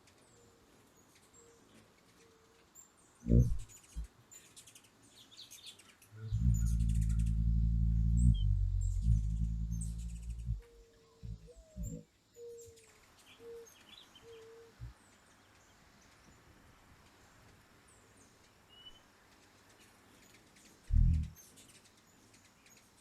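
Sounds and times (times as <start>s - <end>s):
light rain hiss: 0.0s - 23.0s
hummingbird wings humming: 3.3s - 4.1s, 6.2s - 12.1s, 20.9s - 21.4s
faint high chirps: 6.2s - 12.8s.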